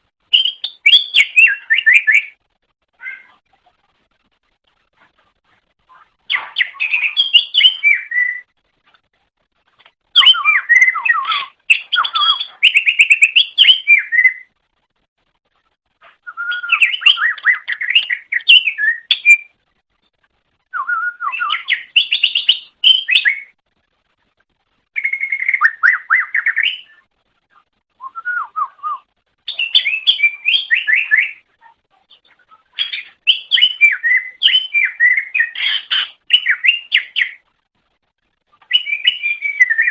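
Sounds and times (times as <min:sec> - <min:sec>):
bird warbling and trilling: 0:00.3 - 0:02.4, 0:03.0 - 0:03.4, 0:05.9 - 0:08.5, 0:10.1 - 0:14.5, 0:16.0 - 0:19.6, 0:20.7 - 0:23.6, 0:25.0 - 0:27.6, 0:29.5 - 0:37.4, 0:38.5 - 0:39.9.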